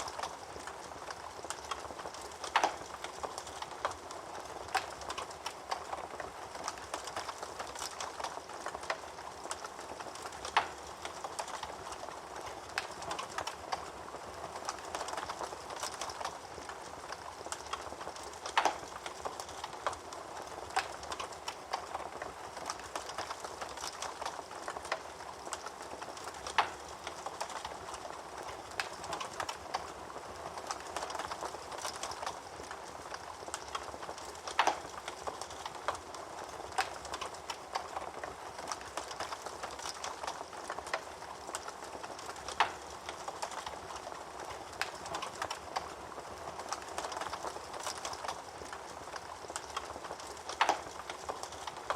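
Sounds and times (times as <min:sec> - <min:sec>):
fire popping loudly: 0:00.0 - 0:51.9
wood fire crackling: 0:00.0 - 0:51.9.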